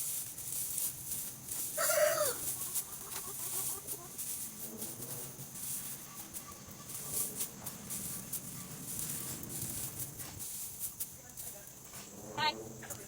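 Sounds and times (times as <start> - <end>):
straw rustling: 0.0 - 13.0
hens clucking: 1.3 - 10.5, 12.0 - 13.0.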